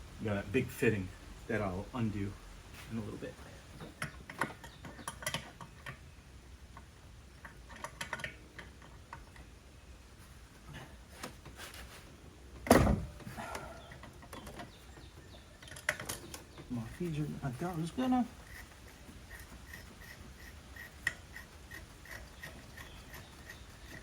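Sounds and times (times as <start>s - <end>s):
light clicks and taps of parts: 3.7s - 6.1s, 6.7s - 9.6s
loud clunk: 12.6s - 13.3s.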